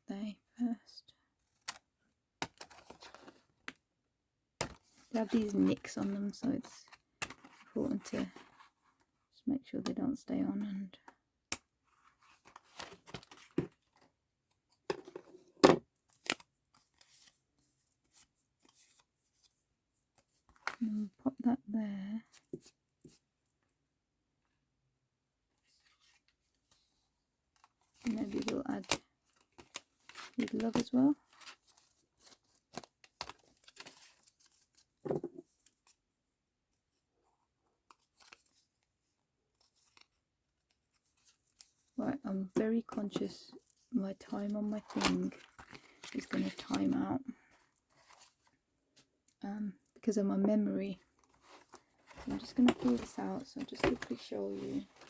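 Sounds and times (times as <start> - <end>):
paper rustling: 51.1 - 55.0.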